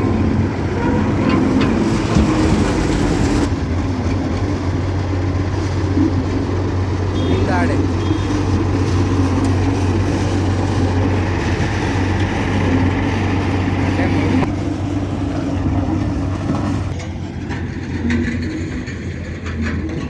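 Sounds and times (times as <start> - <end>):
heavy machinery engine humming: 0.0 - 20.0.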